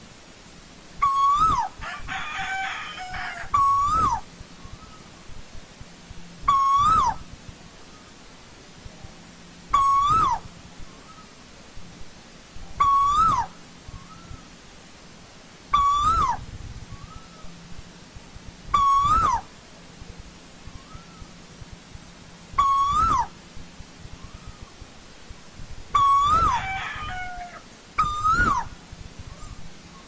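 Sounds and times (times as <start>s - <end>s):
bird calling: 1.0s - 5.4s, 6.4s - 7.3s, 9.7s - 11.4s, 12.8s - 14.6s, 15.7s - 17.6s, 18.7s - 19.5s, 20.6s - 21.4s, 22.5s - 23.4s, 24.1s - 24.9s, 25.9s - 30.0s.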